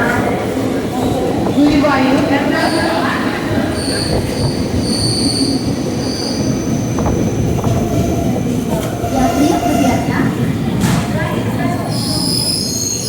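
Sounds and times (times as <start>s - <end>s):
moving train rumble: 0.0s - 13.0s
train wheels squealing on rails: 2.5s - 10.6s, 11.6s - 13.0s.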